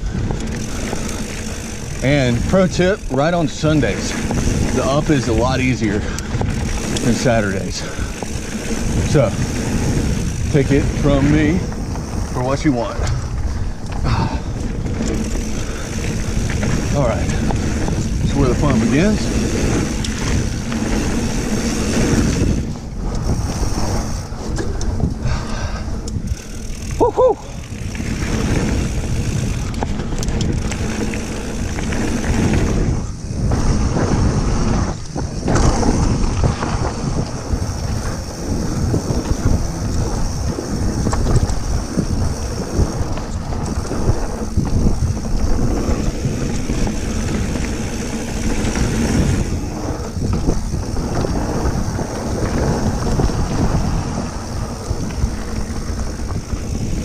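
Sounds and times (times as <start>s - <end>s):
bike tyres and frame rattling: 0.0s - 57.0s
wind buffeting microphone: 0.0s - 57.0s
person shouting woo-hoo: 27.0s - 27.6s.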